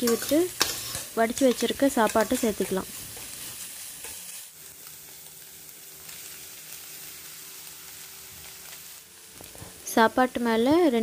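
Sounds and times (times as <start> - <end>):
spatula stirring in pan: 0.0 - 4.4
vegetables and egg sizzling in oil: 0.0 - 11.0.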